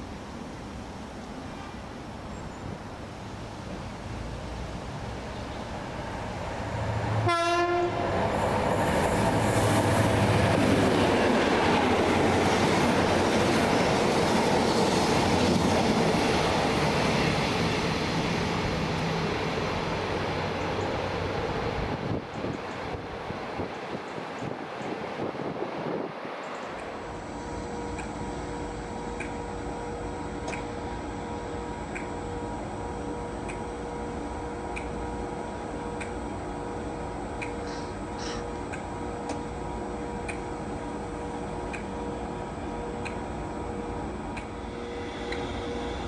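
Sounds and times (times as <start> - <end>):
train wheel and rail rush: 0.0 - 46.0
train horn blast: 7.1 - 8.1.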